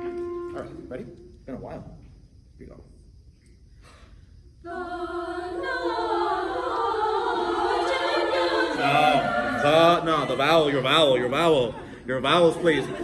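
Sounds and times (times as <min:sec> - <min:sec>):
choir singing unaccompanied: 0:04.6 - 0:13.0.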